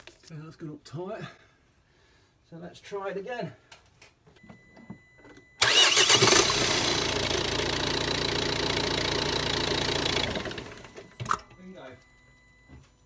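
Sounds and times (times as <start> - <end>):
starter motor cranking: 5.6 - 11.4
car engine running: 6.2 - 11.0.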